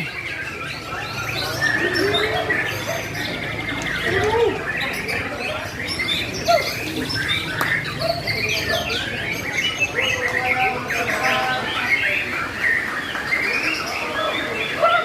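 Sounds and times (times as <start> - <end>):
songbirds whistling: 0.0 - 15.0.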